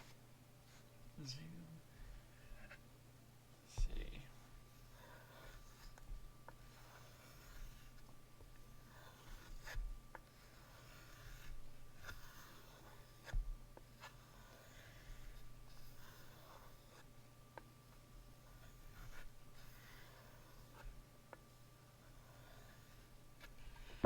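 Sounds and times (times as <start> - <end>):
knife scraping on whetstone: 10.4 - 13.4.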